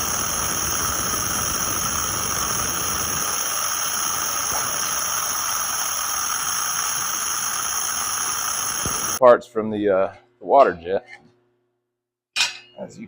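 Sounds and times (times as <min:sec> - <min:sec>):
loud hiss: 0:00.0 - 0:09.2.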